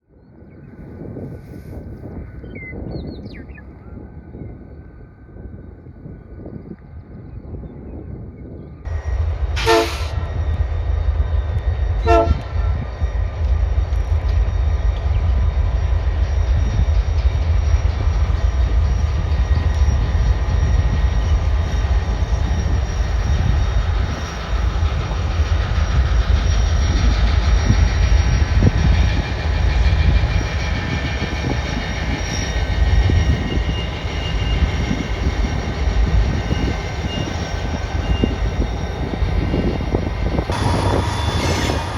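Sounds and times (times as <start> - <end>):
wind buffeting microphone: 0.1 - 41.9
train horn toots: 9.6 - 10.2, 12.0 - 12.8, 40.4 - 41.9.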